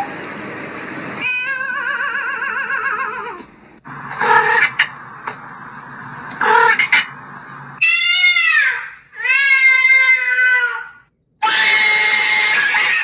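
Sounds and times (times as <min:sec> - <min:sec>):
loud noisy sound: 0:00.0 - 0:01.2, 0:03.8 - 0:07.8
cat meowing: 0:01.2 - 0:03.4.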